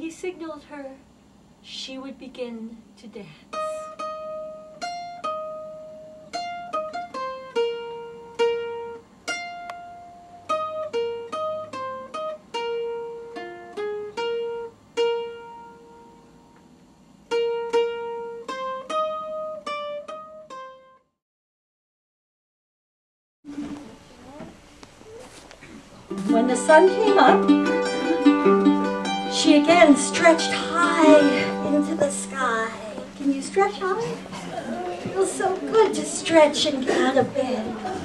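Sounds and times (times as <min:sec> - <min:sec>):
plucked string instrument melody: 0:03.6 - 0:16.5, 0:17.3 - 0:21.0, 0:26.1 - 0:38.0.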